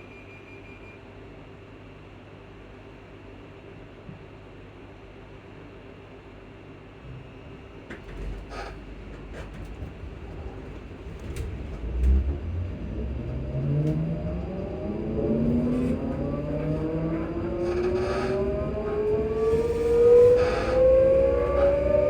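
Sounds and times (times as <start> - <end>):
low rumble: 10.2 - 22.0
electric train motors whining: 11.9 - 22.0.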